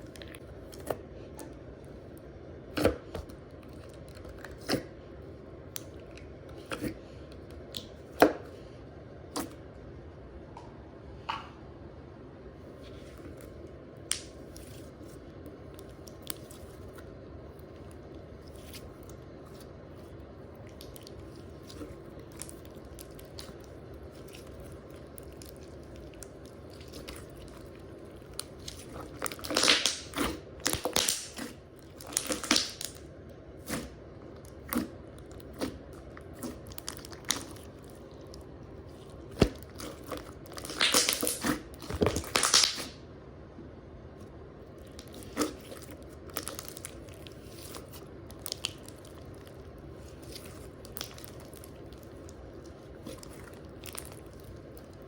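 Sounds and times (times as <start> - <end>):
slime squishing and popping: 20.6 - 33.0, 33.6 - 43.0, 44.8 - 55.0.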